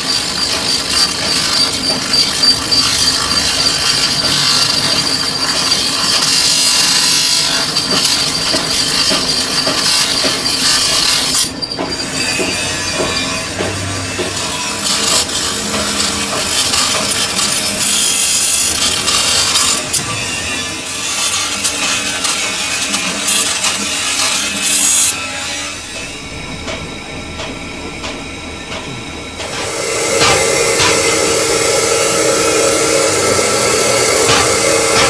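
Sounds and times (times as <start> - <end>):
metal lathe scraping metal: 0.0 - 35.0
high thin whine: 23.2 - 35.0.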